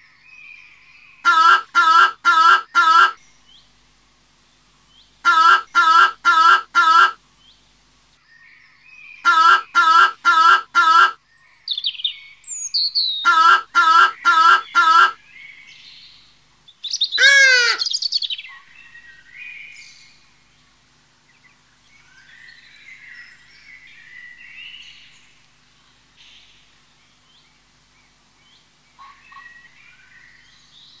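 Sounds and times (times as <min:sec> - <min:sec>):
faint songbirds chirping: 0:00.0 - 0:31.0
loud bird call: 0:01.2 - 0:03.2, 0:05.2 - 0:07.2, 0:09.2 - 0:11.2, 0:12.8 - 0:15.3, 0:16.9 - 0:20.1.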